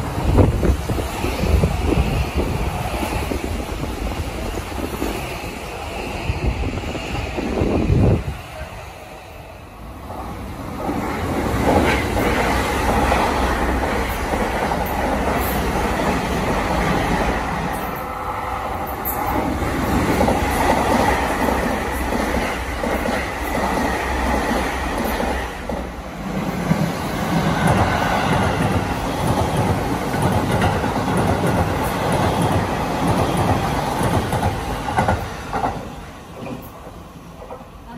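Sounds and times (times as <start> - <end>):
train wheels rumbling on rail: 0.0 - 37.9
clickety-clack over rail joints: 10.1 - 18.2, 18.8 - 37.9.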